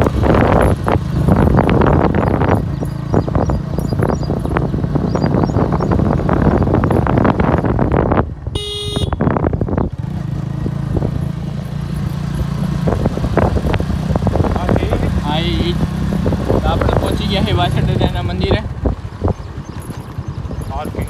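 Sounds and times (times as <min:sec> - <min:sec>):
motorcycle engine running: 0:00.0 - 0:21.0
wind rushing over microphone: 0:00.0 - 0:21.0
vehicle horn beep: 0:08.5 - 0:09.4.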